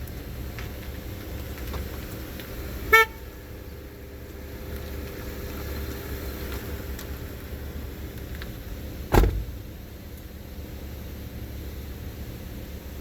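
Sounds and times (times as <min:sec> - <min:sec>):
steady low rumble: 0:07.4 - 0:10.3.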